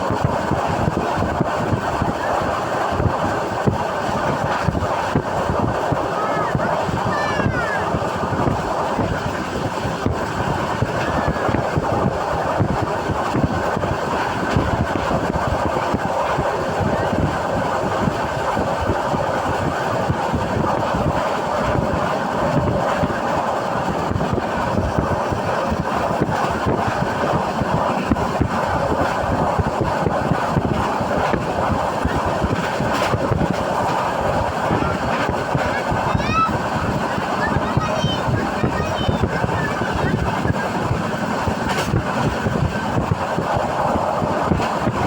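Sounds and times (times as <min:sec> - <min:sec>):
train wheels rumbling and rattling: 0:00.0 - 0:45.0.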